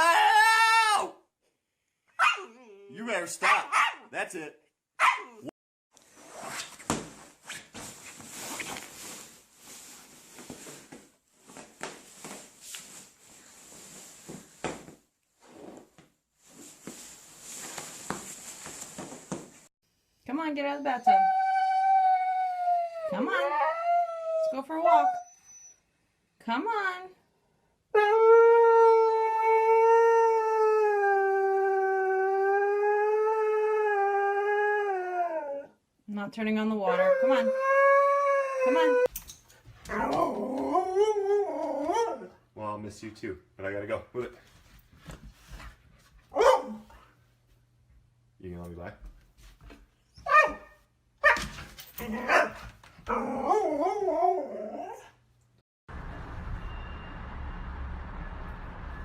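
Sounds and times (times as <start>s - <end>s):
dog barking: 2.2s - 2.6s, 3.4s - 4.1s, 5.0s - 5.5s, 46.3s - 46.9s, 50.3s - 53.6s
dog yelping: 2.2s - 2.7s, 3.4s - 4.0s, 5.0s - 5.5s, 46.3s - 46.9s, 50.2s - 55.1s
dog howling: 36.9s - 39.1s, 39.9s - 42.3s, 53.1s - 55.1s
low rushing noise: 55.9s - 59.0s.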